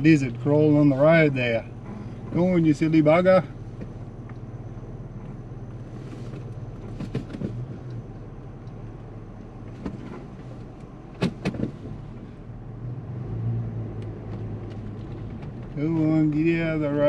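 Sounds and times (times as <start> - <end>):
vehicle engine drone in cabin: 0.0 - 17.0
knocks and rattles from bumps: 6.4 - 7.7, 11.1 - 12.0.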